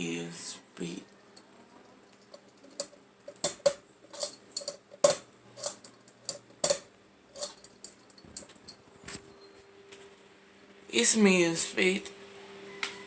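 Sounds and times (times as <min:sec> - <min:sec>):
fan clicking: 0:02.1 - 0:09.2.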